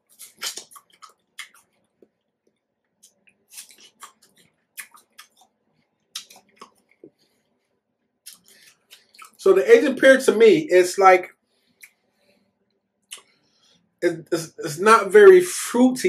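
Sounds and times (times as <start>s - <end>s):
crunchy chewing of pear: 0.0s - 2.1s, 3.0s - 7.1s.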